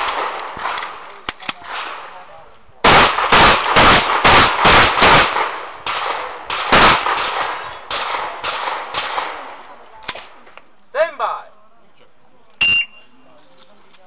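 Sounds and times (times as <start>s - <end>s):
shotgun shots: 0.0s - 10.4s.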